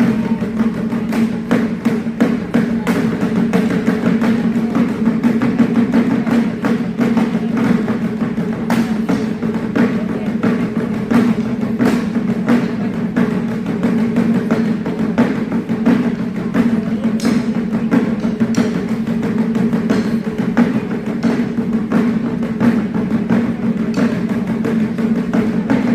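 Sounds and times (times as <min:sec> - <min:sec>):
taiko ensemble drumming: 0:00.0 - 0:25.9.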